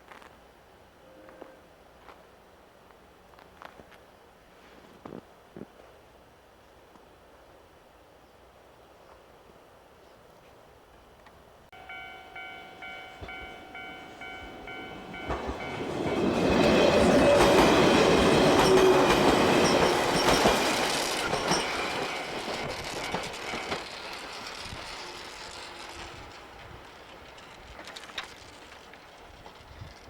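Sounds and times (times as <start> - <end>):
pulsing ringing tone: 11.8 - 17.6
electric train passing: 11.8 - 30.0
rail clatter: 11.8 - 30.0.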